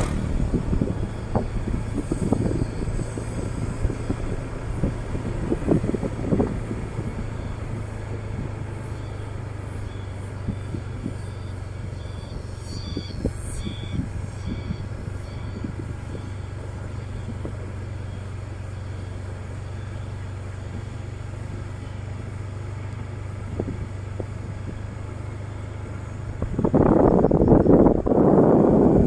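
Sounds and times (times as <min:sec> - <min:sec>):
motorcycle engine humming: 0:00.0 - 0:29.0
faint high chirps: 0:08.2 - 0:20.9.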